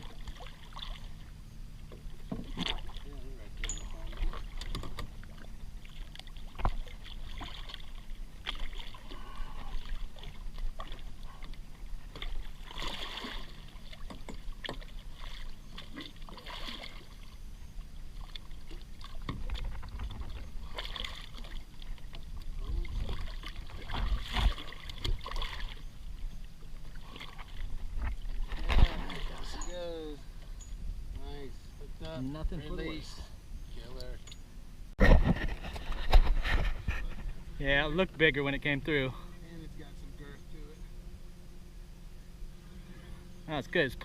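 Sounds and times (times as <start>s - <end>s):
light knocks on hull: 1.9s - 2.8s
water slapping against boat hull: 1.9s - 3.2s, 4.0s - 17.2s, 18.2s - 25.8s, 26.9s - 29.6s
wind rumble on microphone: 34.9s - 37.9s.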